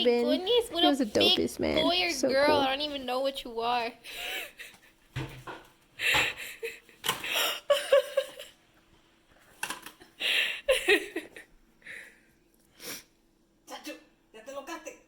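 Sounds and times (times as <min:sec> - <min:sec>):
person laughing and giggling: 0:04.1 - 0:05.0, 0:06.0 - 0:08.6, 0:10.2 - 0:11.5.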